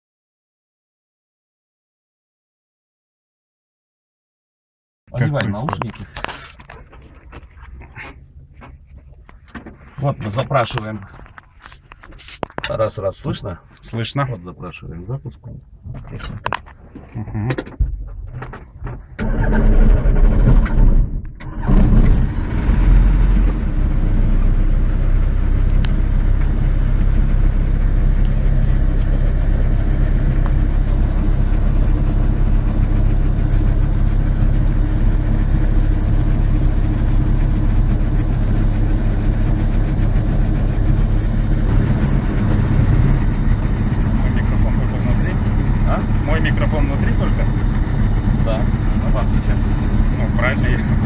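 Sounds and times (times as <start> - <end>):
aircraft engine starting and idling: 18.0 - 51.0.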